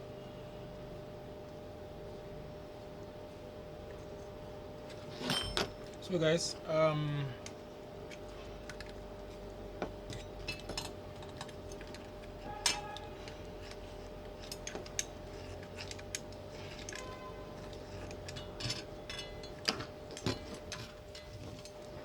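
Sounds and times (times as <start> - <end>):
steady background hum: 0.0 - 22.0
ringing metal clink: 5.2 - 6.0, 12.5 - 13.1, 18.2 - 19.6
metal parts clicking and clinking: 10.1 - 22.0.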